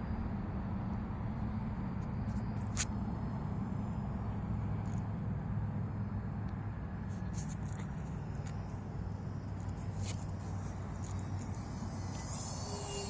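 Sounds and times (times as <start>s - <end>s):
small electric motor buzzing: 9.5s - 13.0s.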